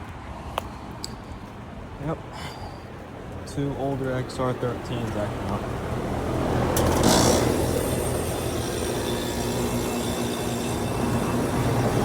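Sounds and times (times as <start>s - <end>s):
fan noise: 0.8s - 12.0s
heat pump humming: 5.6s - 12.0s.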